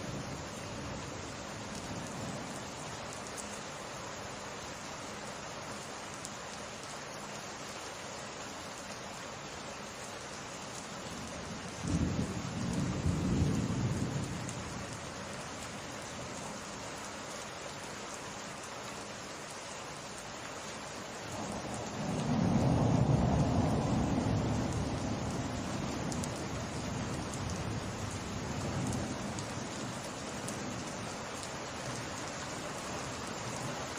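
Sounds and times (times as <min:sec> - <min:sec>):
steady rain hiss: 0:00.0 - 0:33.9
thunder rumbling: 0:11.6 - 0:15.0, 0:21.4 - 0:29.7.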